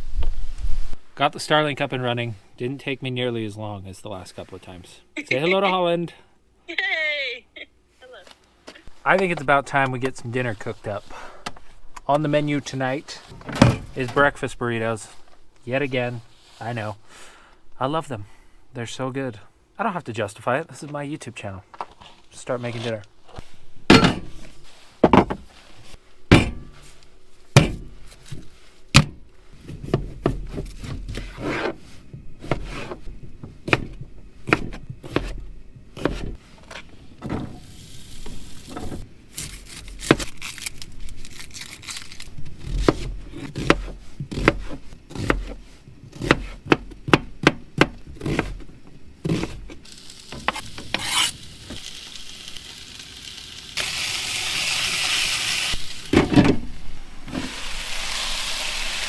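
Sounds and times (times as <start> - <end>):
utensils and cookware clattering: 23.9 - 24.4
food sizzling in a pan: 49.8 - 56.2, 57.1 - 59.0.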